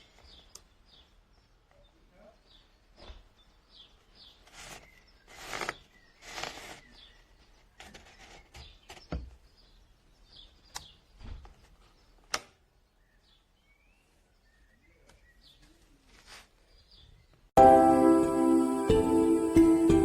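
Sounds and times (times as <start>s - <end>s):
rustling noises: 0.0s - 1.0s, 2.9s - 12.3s, 15.4s - 17.1s
faint bird chirps: 0.0s - 16.0s.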